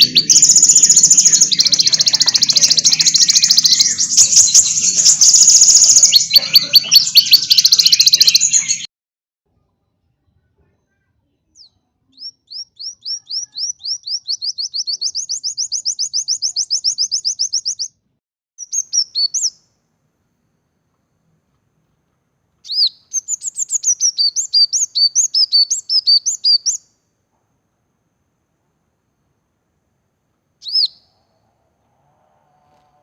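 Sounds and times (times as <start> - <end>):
songbird singing: 0.0 - 8.9, 11.5 - 17.9, 18.6 - 19.9, 22.6 - 27.0, 30.4 - 33.0.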